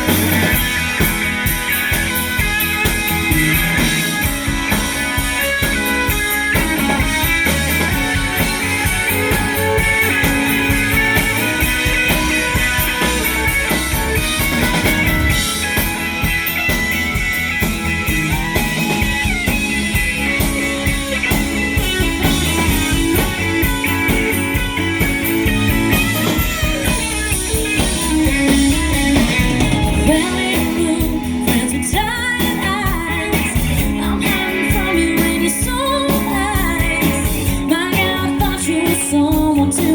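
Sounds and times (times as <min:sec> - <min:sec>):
drum kit: 0:00.0 - 0:39.9
guitar: 0:00.0 - 0:39.9
person singing: 0:30.0 - 0:39.9.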